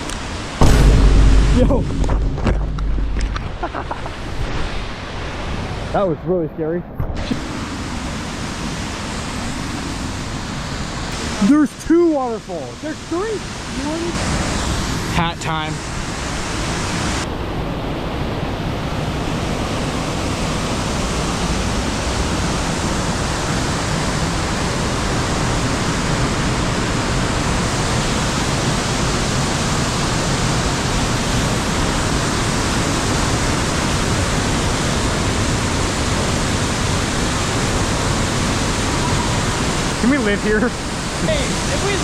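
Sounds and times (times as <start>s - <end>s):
waterfall rushing: 7.2s - 17.3s, 18.9s - 42.0s.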